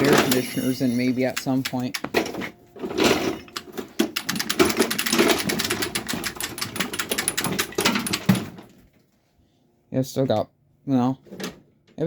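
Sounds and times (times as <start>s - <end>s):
lawnmower wheels rattling on concrete: 0.0s - 8.8s.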